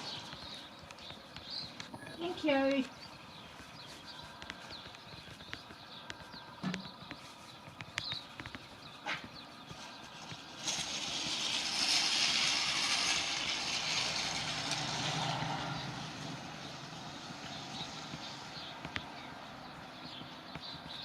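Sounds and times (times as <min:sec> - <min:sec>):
vehicle passing by with hiss: 0:09.7 - 0:19.7.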